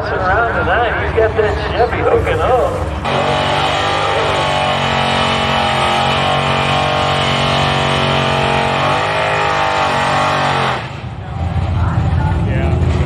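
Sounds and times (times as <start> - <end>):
racing car engine at full throttle: 0.0 - 13.0.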